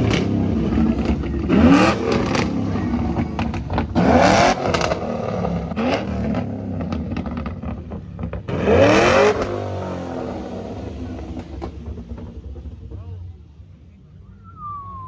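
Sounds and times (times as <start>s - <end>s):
sharp exhaust cracks: 0.0s - 13.0s
car engine revving: 0.0s - 13.4s.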